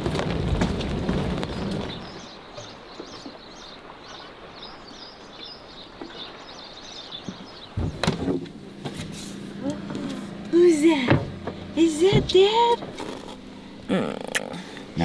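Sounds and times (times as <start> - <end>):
small birds chirping: 1.3 - 15.0
loud thumps: 7.8 - 9.2, 11.0 - 13.2.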